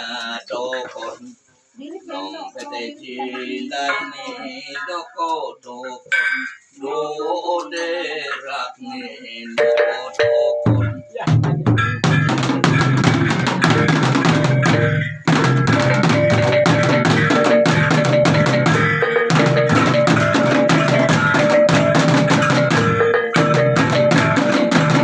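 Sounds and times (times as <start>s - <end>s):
sustained ringing tones: 9.5s - 25.0s
fast drum strokes: 9.6s - 25.0s.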